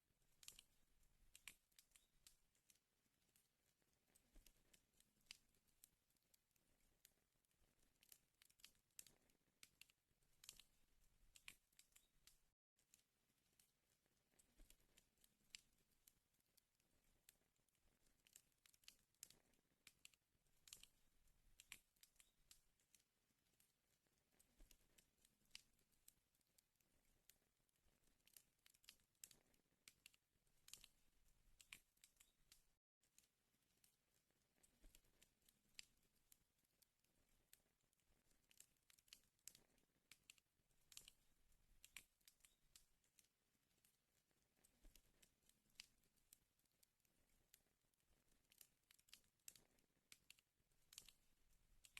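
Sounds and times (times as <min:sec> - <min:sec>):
wood fire crackling: 0:16.9 - 0:22.6.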